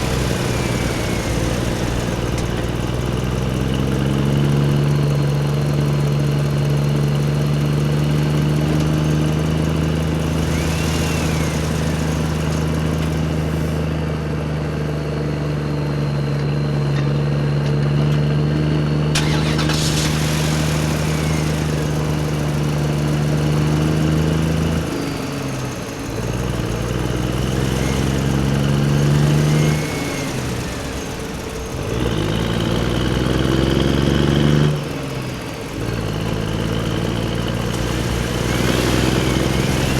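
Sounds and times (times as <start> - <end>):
toy vehicle motors whining: 0.0 - 3.0, 10.2 - 13.8, 19.2 - 23.8.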